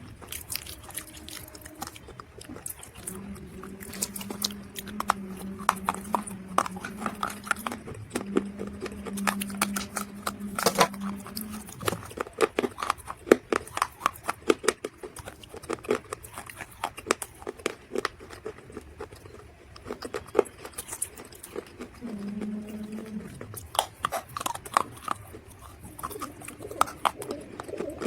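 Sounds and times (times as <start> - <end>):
steady low hum: 0.0 - 19.8, 20.7 - 28.0.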